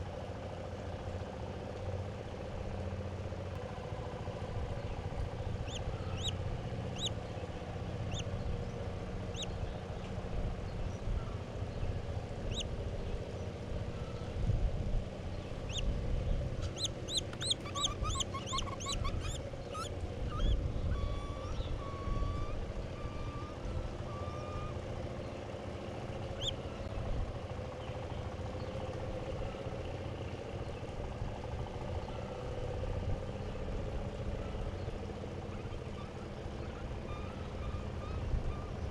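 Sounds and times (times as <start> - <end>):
distant traffic rumble: 0.0 - 38.9
small birds chirping: 4.7 - 14.4, 15.3 - 27.0
bird whistled notes: 16.7 - 24.8.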